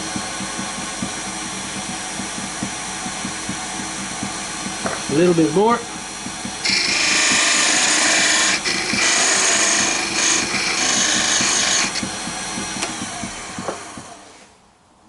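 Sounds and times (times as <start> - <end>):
lathe tool scraping wood: 6.6 - 14.5.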